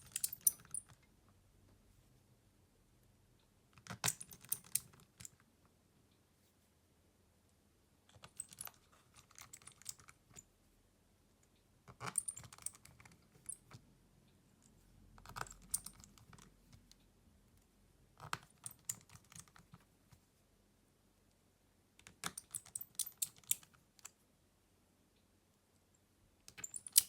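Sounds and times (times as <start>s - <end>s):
small tools clicking and tapping: 0.0s - 1.0s, 3.8s - 5.4s, 22.0s - 24.2s, 26.5s - 27.0s.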